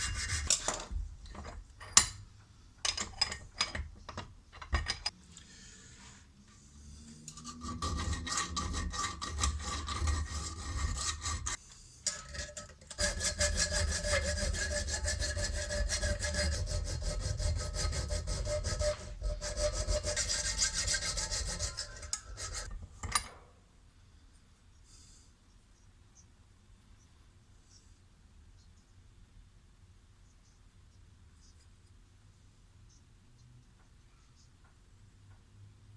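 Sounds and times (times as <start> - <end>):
abrasive rasping on a steel spanner: 0.0 - 0.9, 7.0 - 23.3.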